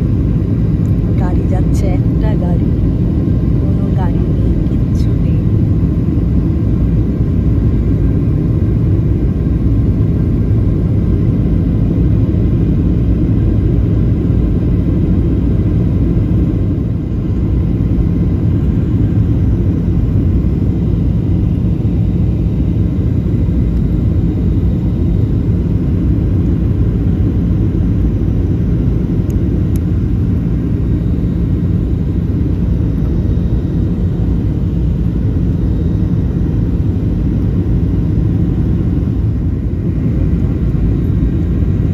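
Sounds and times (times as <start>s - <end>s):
airplane engines droning: 0.0s - 41.9s.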